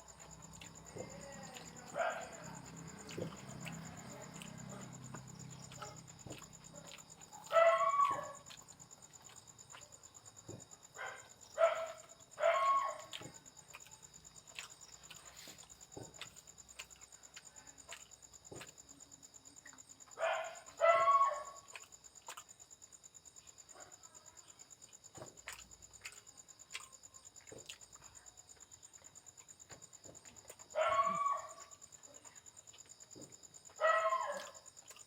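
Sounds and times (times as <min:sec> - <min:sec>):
dog barking and yelping: 0:00.6 - 0:09.8, 0:11.0 - 0:13.8, 0:20.1 - 0:21.9, 0:30.5 - 0:32.2, 0:33.7 - 0:35.0.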